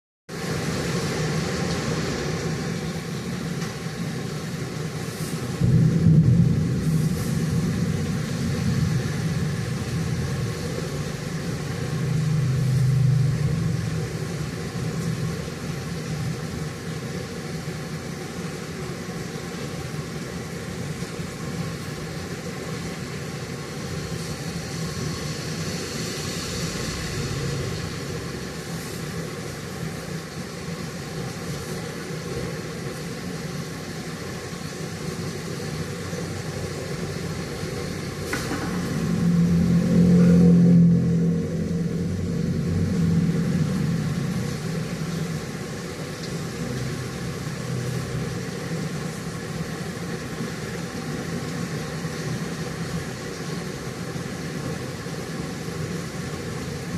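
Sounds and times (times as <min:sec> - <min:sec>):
continuous low rumble: 0:00.3 - 0:56.9
steady rain: 0:00.3 - 0:56.9
hiss: 0:04.6 - 0:05.8, 0:06.7 - 0:08.8, 0:23.5 - 0:33.0.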